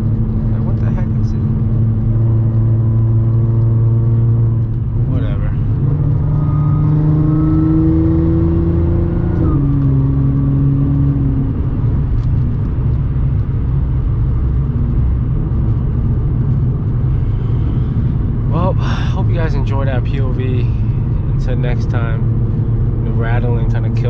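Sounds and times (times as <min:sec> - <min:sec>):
car engine revving: 0:00.0 - 0:24.0
road rumble: 0:00.0 - 0:24.0.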